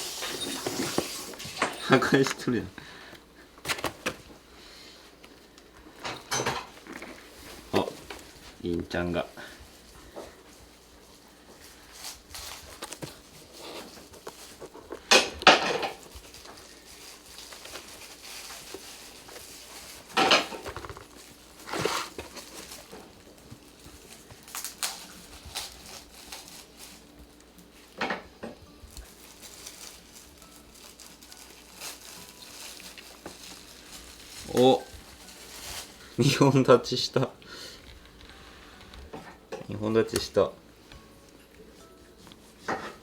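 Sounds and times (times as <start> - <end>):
cats knocking and scraping: 20.2 - 22.4.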